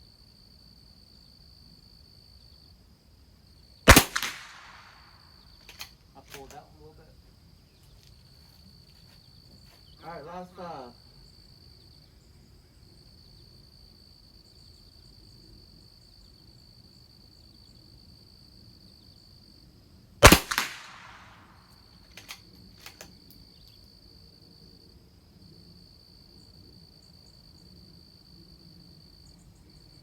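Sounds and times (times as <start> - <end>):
high insect trill: 0.0 - 30.0
rifle shot with echo: 3.9 - 5.1, 20.2 - 21.6
small clicks: 5.6 - 6.6, 22.1 - 23.8.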